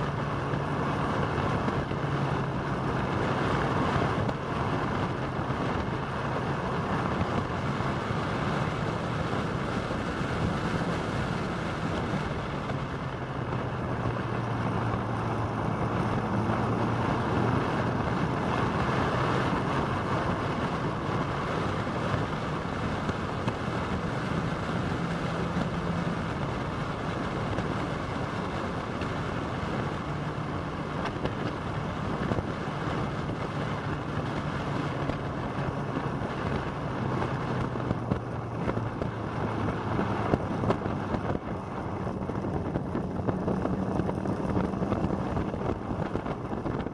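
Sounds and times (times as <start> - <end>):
wind rushing over microphone: 0.0 - 46.9.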